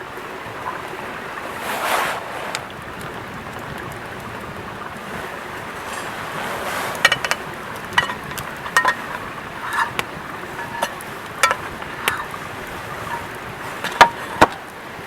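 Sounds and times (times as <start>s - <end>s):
steady rushing noise: 0.0s - 14.6s
spoon clinking metal mug: 7.0s - 10.0s.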